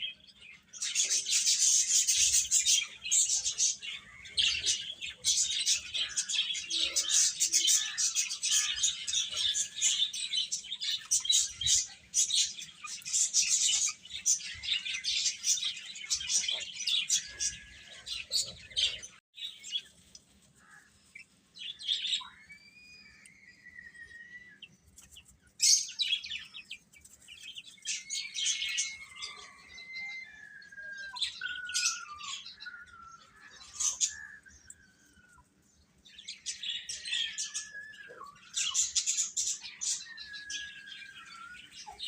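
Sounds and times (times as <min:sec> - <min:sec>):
chicks peeping: 0:00.2 - 0:22.3, 0:33.2 - 0:42.0.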